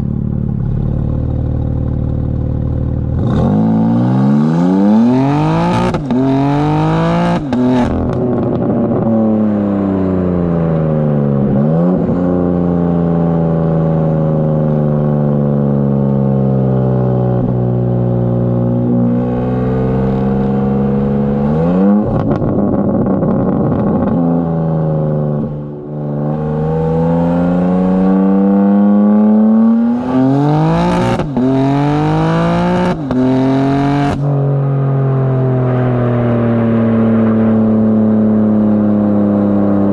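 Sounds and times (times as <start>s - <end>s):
car engine accelerating through gears: 1.0s - 39.9s
exhaust crackling: 17.4s - 28.3s, 28.9s - 39.9s.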